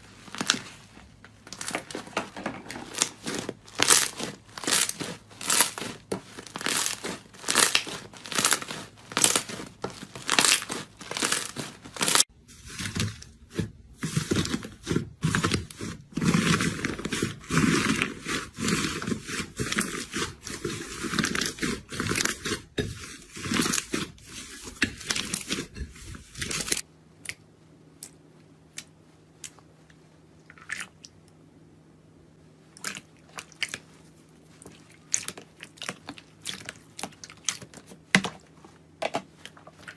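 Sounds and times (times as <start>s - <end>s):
low steady hum: 0.0s - 39.9s
crunchy material crushed by hand: 0.2s - 24.2s.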